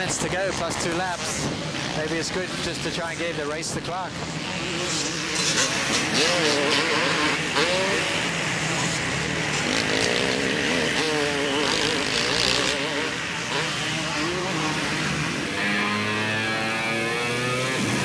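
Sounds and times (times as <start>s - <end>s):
motocross bikes revving: 0.0s - 18.0s.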